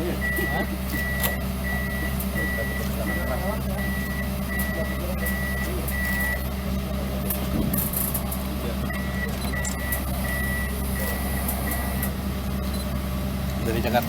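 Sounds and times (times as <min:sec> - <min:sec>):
travel alarm beeping: 0:00.0 - 0:06.6, 0:08.8 - 0:13.0
excavator diesel engine running: 0:00.0 - 0:14.0.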